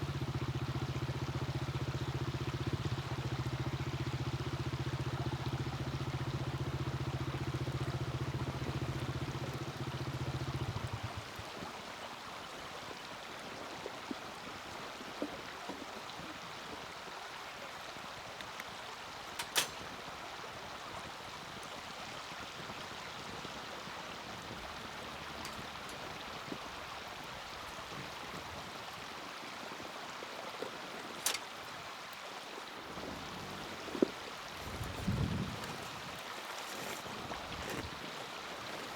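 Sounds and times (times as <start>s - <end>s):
low engine-like hum: 0.0s - 12.5s, 18.8s - 29.5s, 32.4s - 38.9s
campfire burning and crackling: 0.0s - 38.9s.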